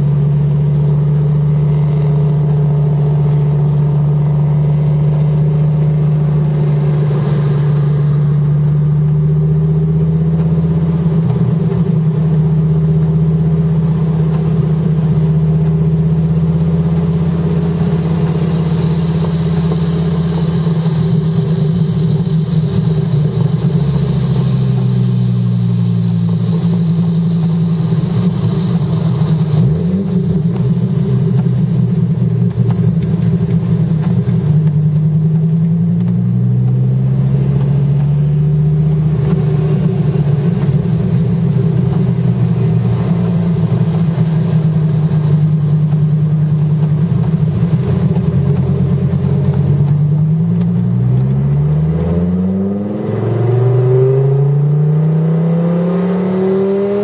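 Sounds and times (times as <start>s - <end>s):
car engine from inside cabin: 0.0s - 57.0s.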